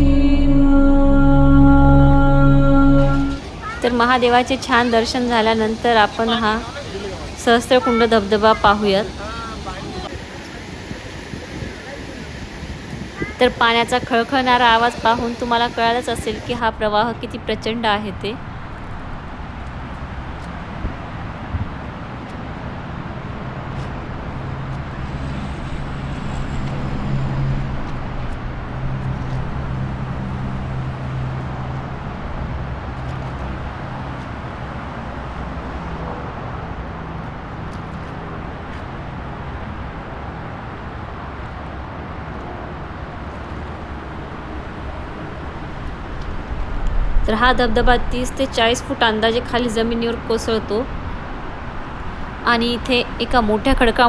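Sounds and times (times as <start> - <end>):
low hum: 0.0 - 3.4.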